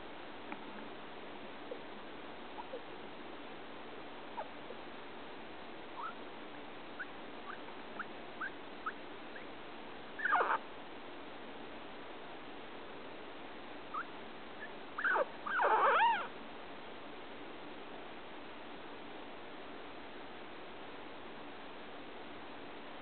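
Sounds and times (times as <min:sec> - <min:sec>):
guinea pig squeaking: 0:06.0 - 0:06.2, 0:07.0 - 0:09.5, 0:10.2 - 0:10.6, 0:13.9 - 0:16.3.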